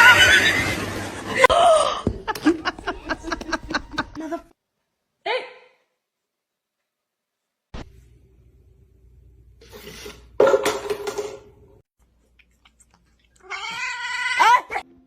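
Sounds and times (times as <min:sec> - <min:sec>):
cat yowling and meowing: 0:13.4 - 0:14.8.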